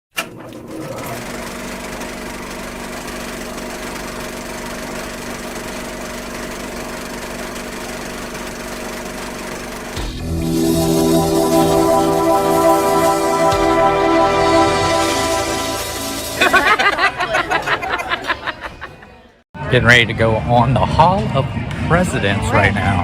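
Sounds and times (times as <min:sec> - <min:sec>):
mechanical drone: 0:03.3 - 0:16.6
music: 0:10.0 - 0:17.2, 0:19.6 - 0:23.0
held low tones: 0:10.1 - 0:16.6.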